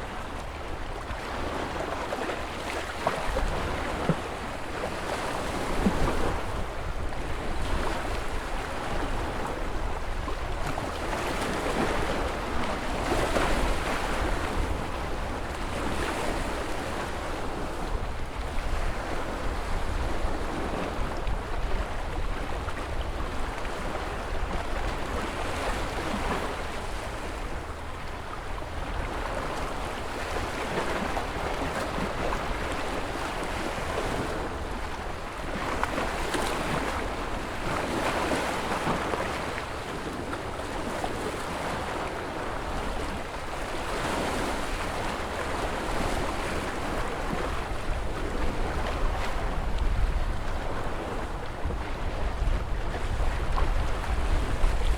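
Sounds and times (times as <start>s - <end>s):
waves breaking: 0.0s - 54.9s.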